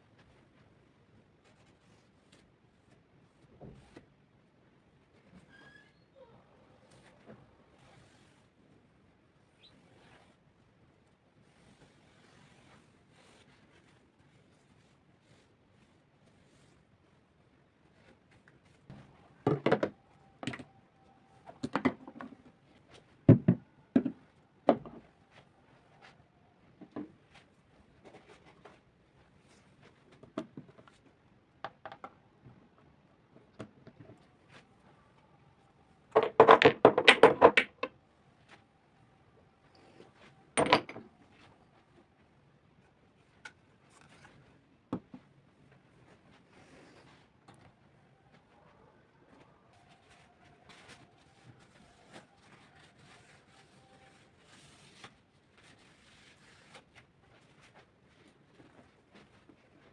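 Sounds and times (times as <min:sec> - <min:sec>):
objects thunking and knocking: 0:18.9 - 0:20.7, 0:23.3 - 0:25.0, 0:36.2 - 0:37.9, 0:40.6 - 0:41.1
objects knocking: 0:36.2 - 0:37.9, 0:40.6 - 0:41.1.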